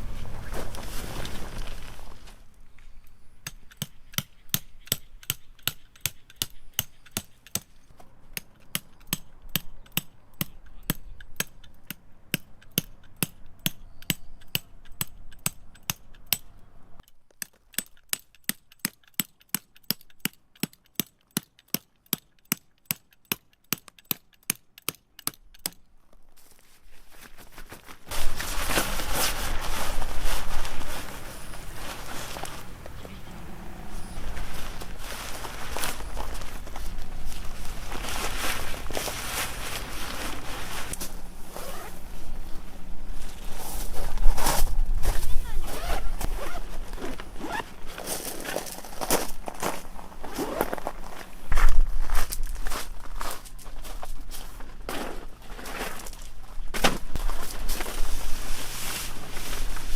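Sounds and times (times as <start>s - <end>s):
noisy rustling: 0.0s - 3.0s, 26.5s - 59.9s.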